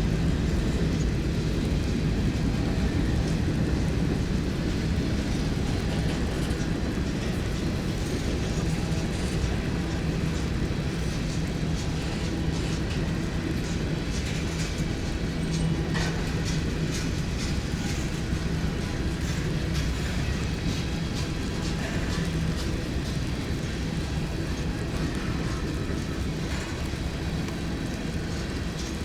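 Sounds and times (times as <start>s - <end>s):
train cars rumbling: 0.0s - 29.0s
wheels clicking over rail joints: 0.1s - 29.0s.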